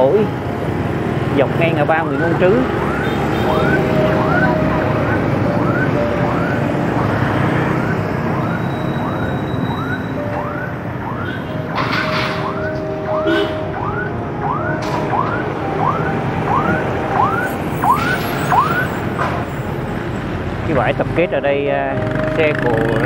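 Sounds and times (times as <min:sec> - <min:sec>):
street traffic noise: 0:00.0 - 0:23.0
bicycle squeaking: 0:08.3 - 0:10.2.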